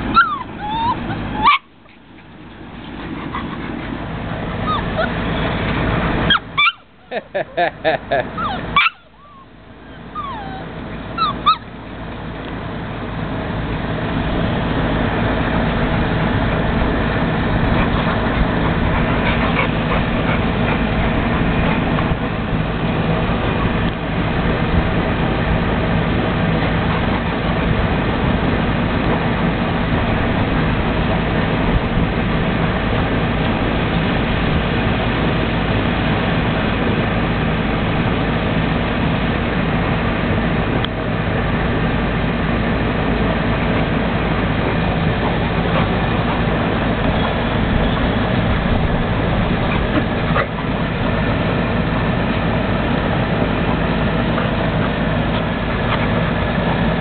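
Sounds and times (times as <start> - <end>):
motor hum: 0.0 - 57.0
puppy yips: 0.1 - 1.7, 3.1 - 3.8, 4.6 - 5.2, 6.3 - 6.9, 8.4 - 11.7.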